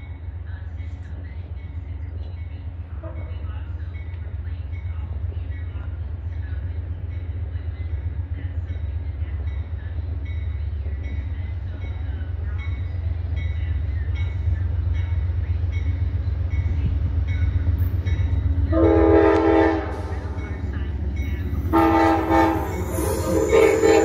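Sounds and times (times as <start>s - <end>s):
train rumbling: 0.0s - 24.0s
train horn chord: 18.7s - 20.4s, 21.6s - 24.0s.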